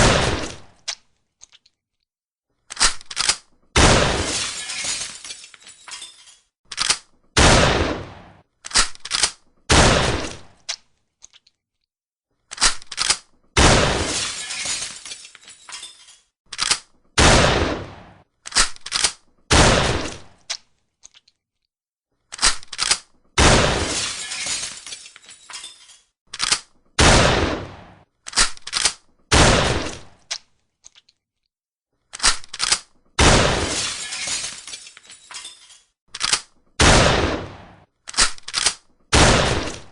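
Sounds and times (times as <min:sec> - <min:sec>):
shotgun firing: 0:00.0 - 0:00.7, 0:03.8 - 0:04.3, 0:07.4 - 0:08.4, 0:09.7 - 0:10.5, 0:13.6 - 0:14.1, 0:17.2 - 0:18.2, 0:19.5 - 0:20.3, 0:23.4 - 0:24.0, 0:27.0 - 0:28.0, 0:29.3 - 0:30.1, 0:33.2 - 0:33.8, 0:36.8 - 0:37.8, 0:39.1 - 0:39.9
gun reloading clacks: 0:02.7 - 0:03.6, 0:05.9 - 0:07.2, 0:08.6 - 0:09.5, 0:12.5 - 0:13.4, 0:15.9 - 0:17.0, 0:18.4 - 0:19.3, 0:22.3 - 0:23.2, 0:25.5 - 0:26.8, 0:28.2 - 0:29.1, 0:32.1 - 0:33.0, 0:35.3 - 0:36.6, 0:38.0 - 0:39.0.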